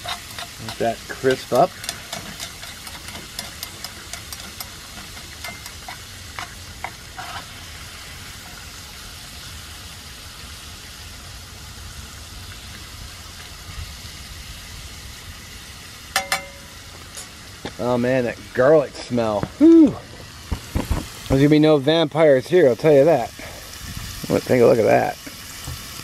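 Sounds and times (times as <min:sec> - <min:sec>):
utensil scraping a pan: 0:00.0 - 0:07.8
food sizzling in oil: 0:00.0 - 0:26.0.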